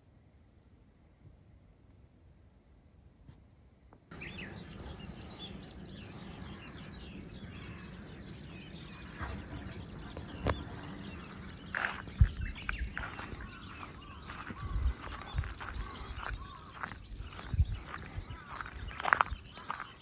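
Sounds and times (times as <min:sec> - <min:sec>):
small birds chirping: 0:04.1 - 0:20.0.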